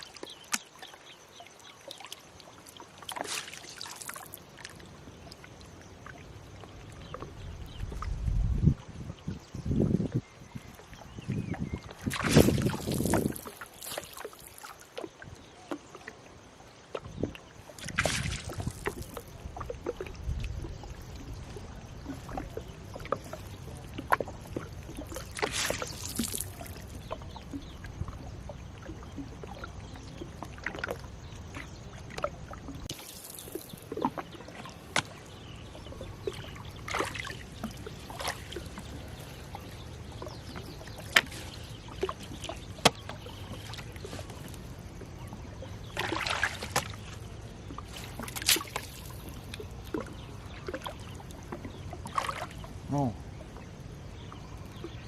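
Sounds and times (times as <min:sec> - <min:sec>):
water splashing: 0:00.0 - 0:09.4, 0:10.8 - 0:55.0
sharp clicks of net hauling: 0:48.1 - 0:49.2.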